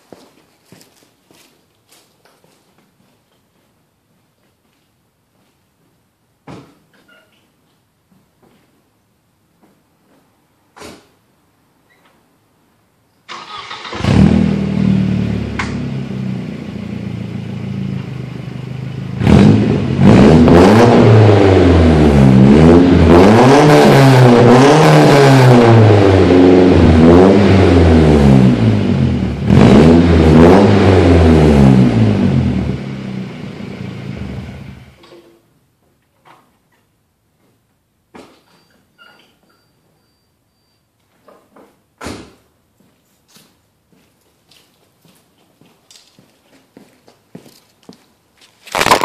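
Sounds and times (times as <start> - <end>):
car engine starting and revving: 13.3 - 35.0.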